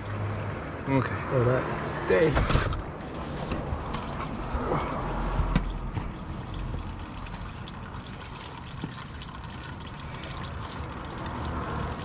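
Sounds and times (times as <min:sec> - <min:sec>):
oil trickling through a tube: 0:00.0 - 0:12.0.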